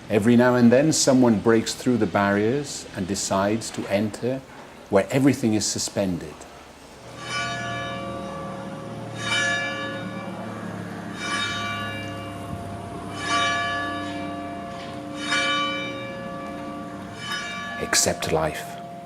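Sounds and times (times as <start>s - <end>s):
large bell tolling: 7.0s - 19.0s.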